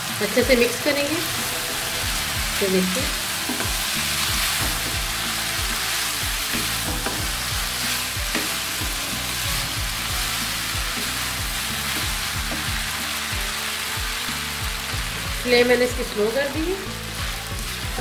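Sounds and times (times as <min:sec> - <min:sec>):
food sizzling in a frying pan: 0:00.0 - 0:18.0
wooden spatula knocking: 0:04.4 - 0:05.1, 0:06.5 - 0:07.4.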